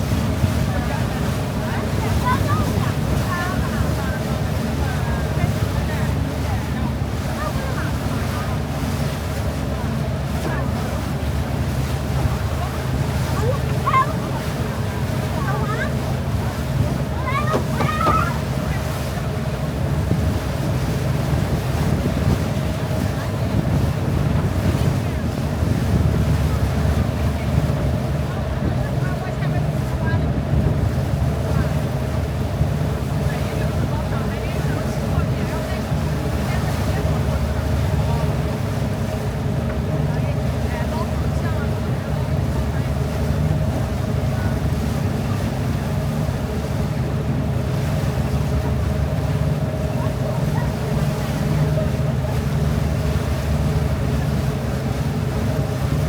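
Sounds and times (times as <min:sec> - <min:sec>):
boat rumble: 0:00.0 - 0:56.0
faint engine hum: 0:00.0 - 0:56.0
water wash noise: 0:00.0 - 0:56.0
wind buffeting microphone: 0:00.0 - 0:56.0
wind on microphone: 0:09.4 - 0:36.3.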